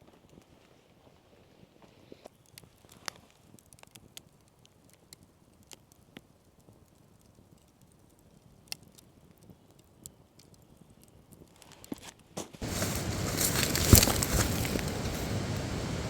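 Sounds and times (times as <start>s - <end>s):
sharp crackles and ticks: 1.8s - 12.2s.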